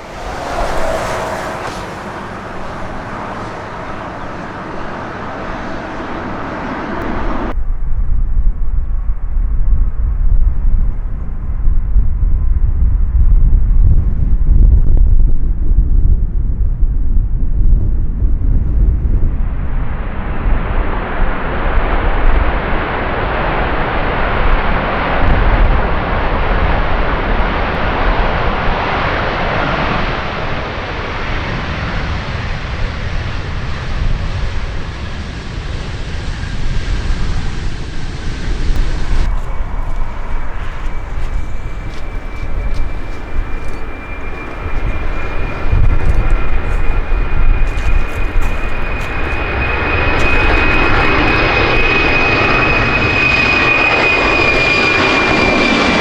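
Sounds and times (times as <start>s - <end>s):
large aircraft passing: 0.0s - 7.6s, 19.7s - 56.0s
aircraft engine high whine: 0.0s - 8.0s, 18.6s - 56.0s.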